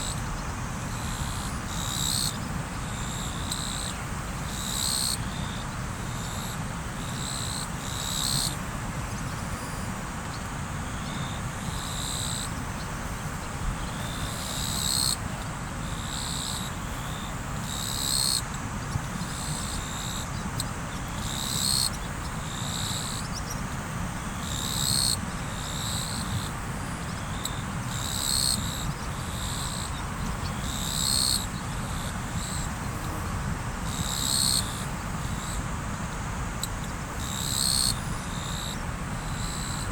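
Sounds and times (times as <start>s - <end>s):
river water flowing: 8.6s - 37.2s, 38.0s - 39.9s.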